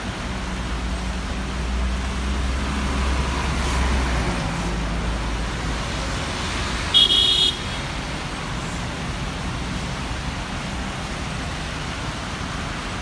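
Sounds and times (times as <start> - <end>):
road traffic: 0.0 - 13.0
passing vehicle rumble: 0.1 - 6.9
car horn: 6.9 - 7.8.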